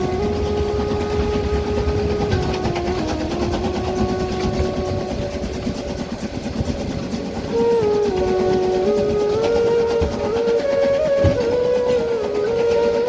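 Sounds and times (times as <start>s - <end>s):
slow melody: 0.0s - 13.0s
train wheels rumbling on rails: 0.0s - 13.0s.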